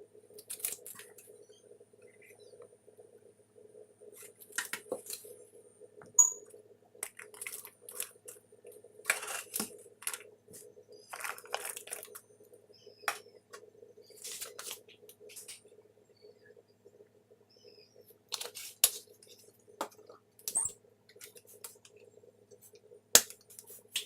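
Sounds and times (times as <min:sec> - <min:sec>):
faint steady hum: 0:00.0 - 0:24.0
food preparation handling sounds: 0:09.1 - 0:12.2, 0:14.2 - 0:15.6.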